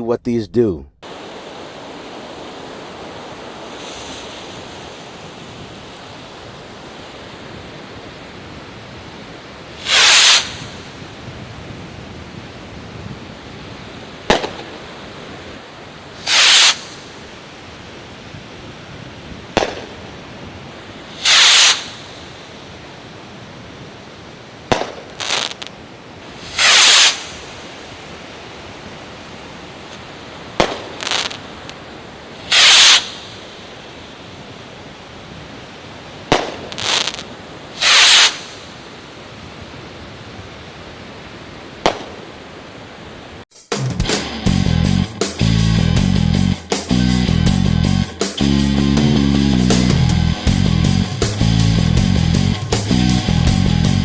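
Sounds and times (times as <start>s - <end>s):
steady hiss: 1.0s - 43.4s
firework rocket whoosh: 1.2s - 7.3s, 8.8s - 17.8s, 19.2s - 23.0s, 24.6s - 34.7s, 36.2s - 39.0s
firework crackles: 1.3s - 39.2s, 41.8s - 42.5s
firework pop in the air: 9.8s - 10.9s, 14.3s - 14.9s, 16.2s - 17.1s, 19.6s - 20.0s, 21.2s - 22.3s, 24.7s - 25.7s, 26.4s - 27.6s, 30.6s - 31.8s, 32.5s - 33.4s, 36.3s - 38.6s, 41.8s - 42.2s.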